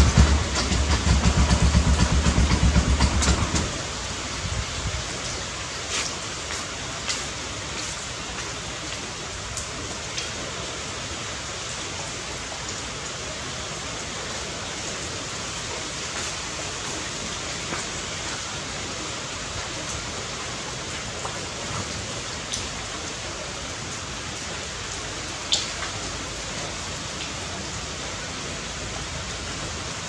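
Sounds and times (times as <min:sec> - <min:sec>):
heavy pulsing low rumble: 0:00.0 - 0:04.9
rain hiss: 0:00.0 - 0:30.0.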